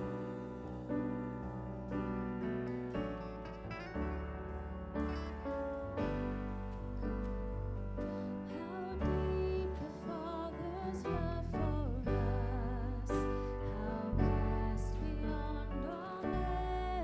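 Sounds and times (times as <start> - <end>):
piano: 0.0 - 17.0
slow worship music: 0.0 - 17.0
sustained low bass notes: 0.0 - 17.0.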